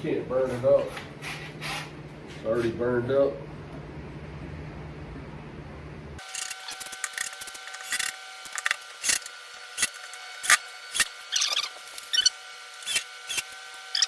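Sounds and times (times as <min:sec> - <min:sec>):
hand tool squeaks and clicks: 0:09.8 - 0:14.0.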